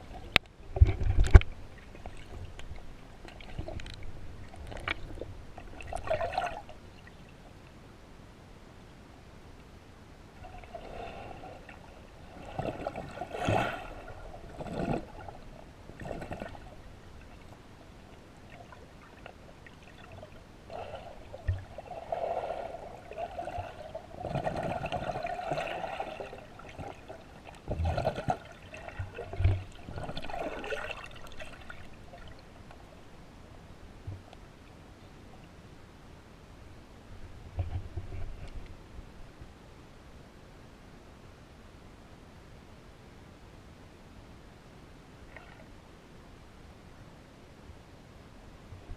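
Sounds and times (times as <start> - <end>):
water splashing and sloshing: 0.0 - 7.6, 10.4 - 33.2, 45.2 - 45.8.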